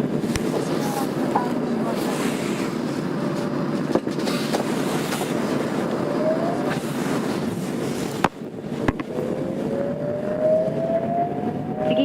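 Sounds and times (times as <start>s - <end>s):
train wheels rumbling on rail: 0.0s - 12.0s
inverter whine: 2.6s - 12.0s.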